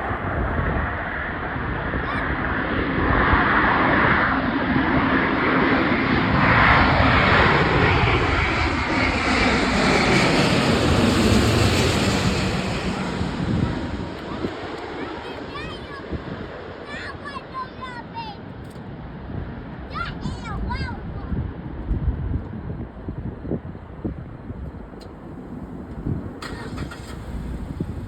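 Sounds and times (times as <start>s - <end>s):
jet engines rushing: 0.0s - 18.2s, 25.0s - 28.0s.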